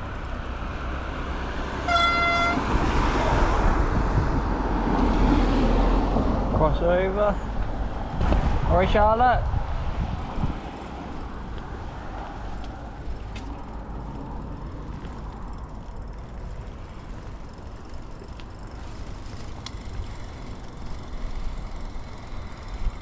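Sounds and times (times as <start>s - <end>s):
bicycle tyre noise: 0.0s - 23.0s
wind on microphone: 2.6s - 6.7s, 7.4s - 15.8s.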